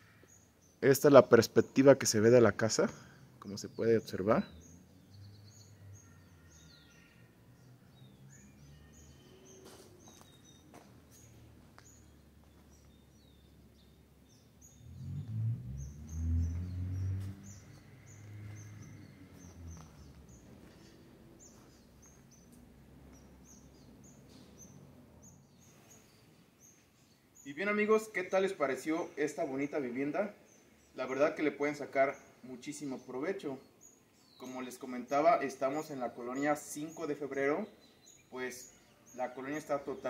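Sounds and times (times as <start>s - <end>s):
faint outdoor background noise: 0.0s - 40.0s
small birds chirping: 0.0s - 40.0s
low rumble: 14.8s - 21.6s.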